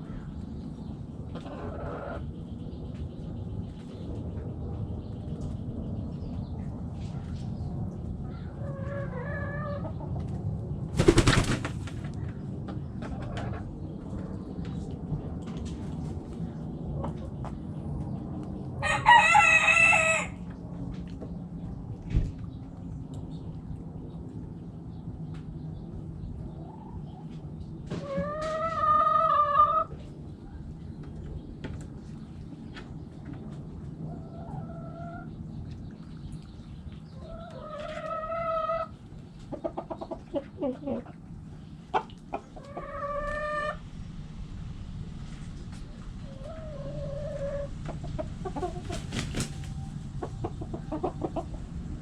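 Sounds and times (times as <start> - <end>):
chickens calling: 0.0 - 3.0, 8.2 - 14.8, 18.8 - 20.6, 26.3 - 44.0, 45.2 - 52.0
low steady rumble: 0.0 - 11.0, 29.4 - 52.0
hens clucking: 1.2 - 2.3, 8.5 - 10.4, 12.7 - 13.7, 26.6 - 30.1, 33.3 - 35.4, 37.1 - 43.9, 45.5 - 52.0
rooster crowing: 18.8 - 20.4.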